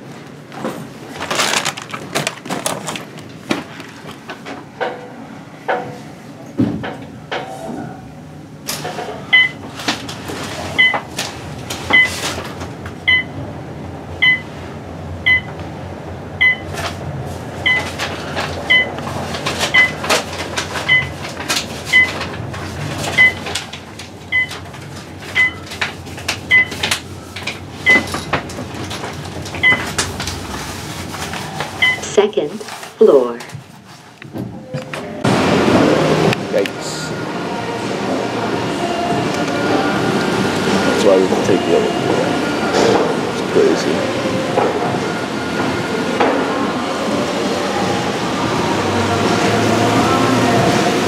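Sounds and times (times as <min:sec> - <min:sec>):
knocks and clatter: 0:00.5 - 0:07.5
low rumble: 0:27.2 - 0:32.0
electronic beep: 0:27.8 - 0:28.1, 0:29.6 - 0:29.9, 0:31.8 - 0:32.1.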